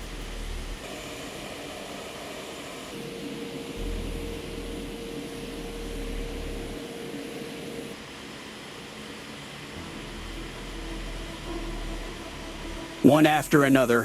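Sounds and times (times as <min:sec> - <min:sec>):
deep rumble: 0:00.0 - 0:00.8, 0:03.8 - 0:06.8, 0:09.8 - 0:13.5
engine whine: 0:00.0 - 0:14.0
jet engines rushing noise: 0:00.0 - 0:14.0.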